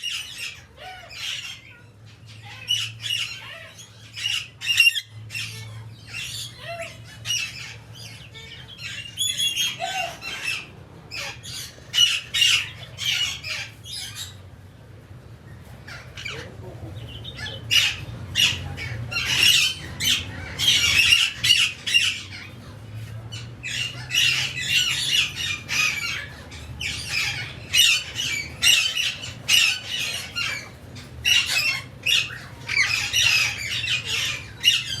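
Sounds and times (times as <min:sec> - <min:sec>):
birds calling in scratchy bursts: 0:17.2 - 0:35.0.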